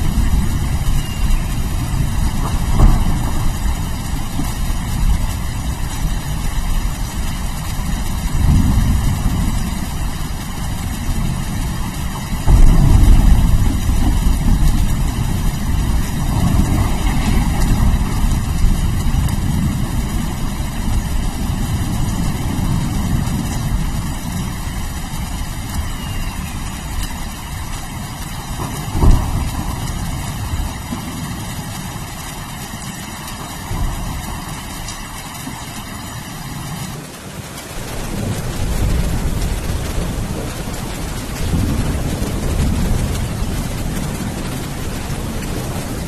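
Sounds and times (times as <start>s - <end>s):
sharp thunder crack: 0.0s - 5.1s, 12.4s - 24.4s, 28.5s - 30.9s
rain hissing: 0.0s - 46.0s
rolling thunder rumble: 0.0s - 46.0s.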